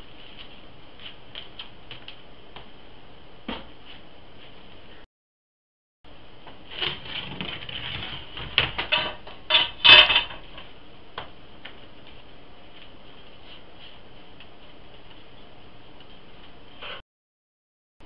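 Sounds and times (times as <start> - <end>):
metal scraping and clanking: 8.8 - 10.7.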